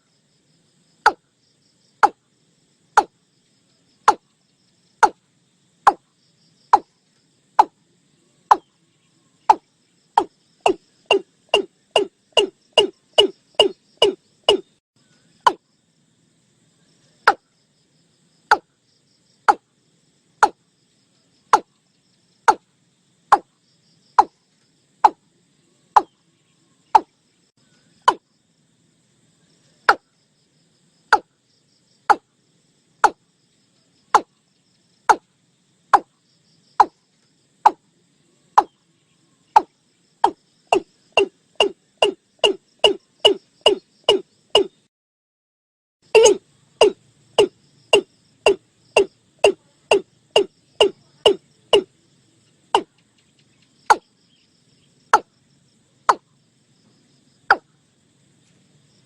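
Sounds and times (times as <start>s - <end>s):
watercock calling: 10.6s - 14.6s, 46.1s - 51.9s.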